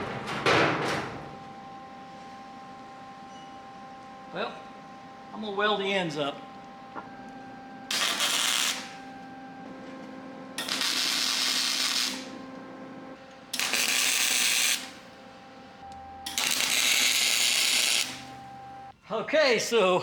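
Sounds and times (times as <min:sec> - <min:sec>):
hissing welding noise: 0:07.9 - 0:09.0, 0:10.6 - 0:12.4, 0:13.4 - 0:15.1, 0:16.2 - 0:18.3.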